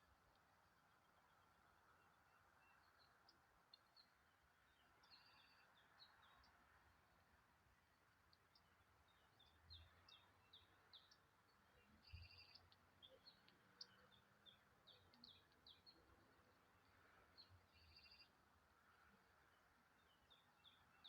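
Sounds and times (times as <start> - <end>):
birds chirping: 8.5 - 18.4.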